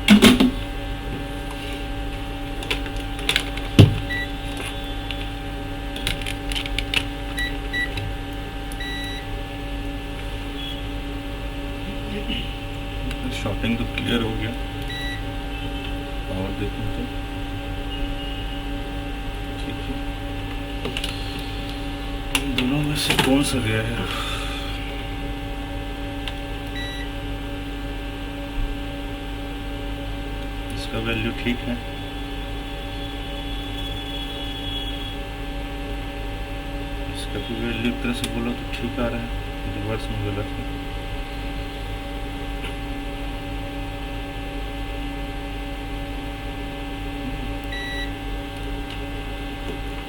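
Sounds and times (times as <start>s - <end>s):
steady electrical hum: 0.0s - 50.0s
multimeter beeps: 3.8s - 4.7s, 7.3s - 8.0s, 8.8s - 9.3s, 14.8s - 15.3s, 26.7s - 27.1s, 47.7s - 48.2s
multimeter probes clicking: 6.0s - 7.1s.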